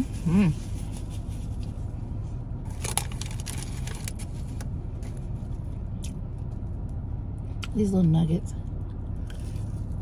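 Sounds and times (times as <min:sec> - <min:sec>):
low rumble inside a car: 0:00.0 - 0:10.0
person chewing fried food: 0:08.8 - 0:10.0.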